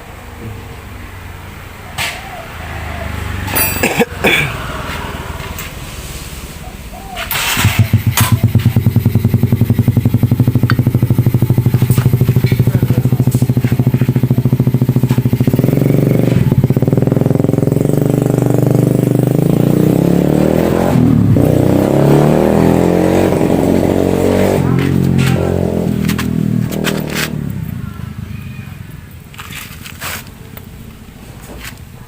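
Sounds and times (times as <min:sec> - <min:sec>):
motorcycle engine running: 0:07.3 - 0:31.2.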